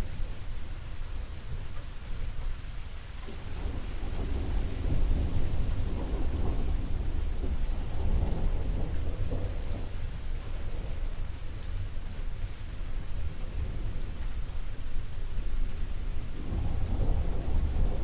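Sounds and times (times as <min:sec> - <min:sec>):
low rumble of thunder: 0:00.0 - 0:18.0
steady rain falling: 0:00.0 - 0:18.0.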